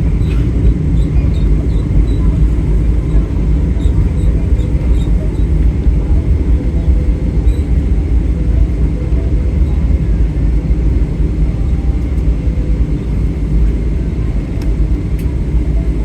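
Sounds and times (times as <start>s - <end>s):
aircraft cabin low rumble: 0.0s - 16.0s
faint steady hum: 0.0s - 16.0s.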